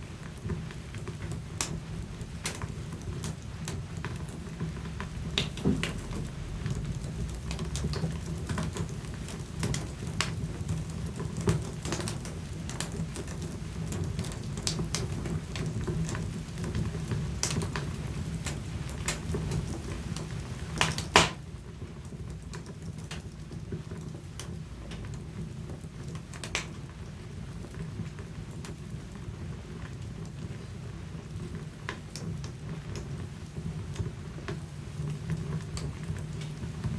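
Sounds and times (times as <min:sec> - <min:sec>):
low fire rumble: 0:00.0 - 0:36.9
wood fire crackling: 0:00.0 - 0:36.9
sharp popping of fire: 0:00.1 - 0:21.4, 0:25.9 - 0:26.8.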